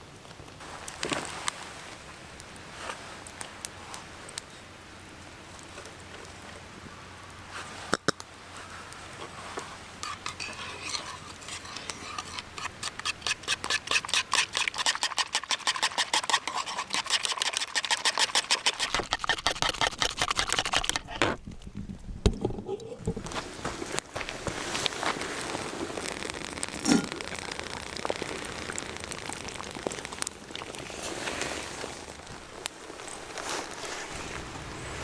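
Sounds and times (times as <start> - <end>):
stirring in a bowl: 9.5 - 21.2.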